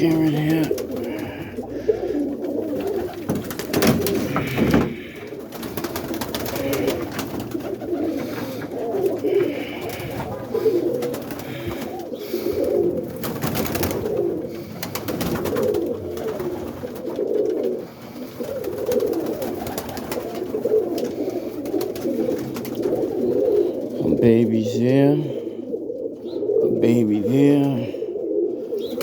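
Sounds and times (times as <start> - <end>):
pigeons cooing: 0.0 - 29.0.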